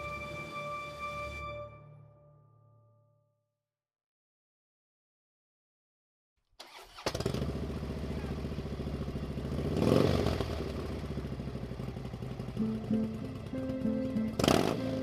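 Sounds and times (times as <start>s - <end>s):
motorcycle passing close: 7.0s - 15.0s
motorcycle engines running: 7.1s - 15.0s.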